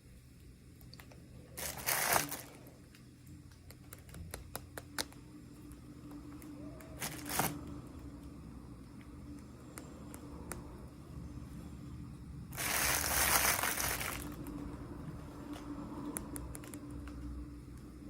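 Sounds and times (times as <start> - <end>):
packaging rustling: 1.6 - 2.6, 7.0 - 7.6, 12.6 - 14.4
small clicks and taps: 2.9 - 7.0, 9.0 - 10.7, 16.1 - 17.9.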